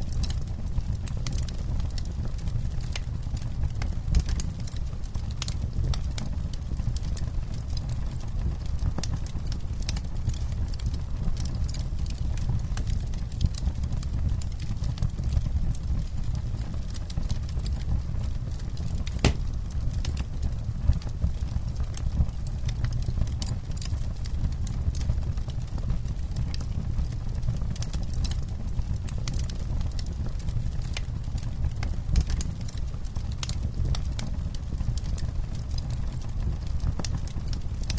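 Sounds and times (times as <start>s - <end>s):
campfire flames rumbling: 0.0s - 37.9s
wood popping and snapping: 19.1s - 19.6s.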